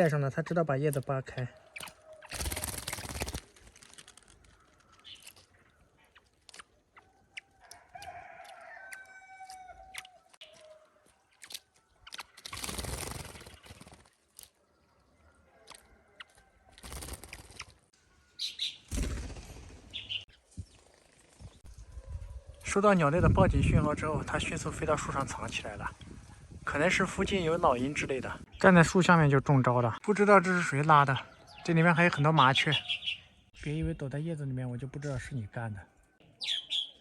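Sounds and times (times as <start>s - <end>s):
bird splashing in water: 1.8s - 4.0s
long drawn-out crowing call: 7.6s - 10.9s.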